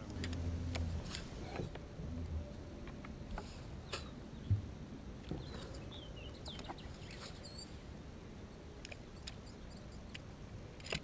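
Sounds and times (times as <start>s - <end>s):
low steady background noise: 0.0s - 11.0s
bird chirping: 3.8s - 7.9s, 8.5s - 10.2s.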